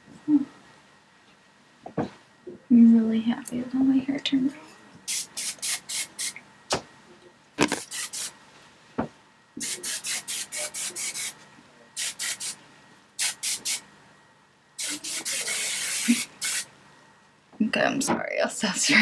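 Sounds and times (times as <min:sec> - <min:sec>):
hairspray spraying: 0:05.1 - 0:06.4, 0:07.6 - 0:08.3, 0:09.6 - 0:11.4, 0:12.0 - 0:12.6, 0:13.2 - 0:13.8, 0:14.8 - 0:16.7.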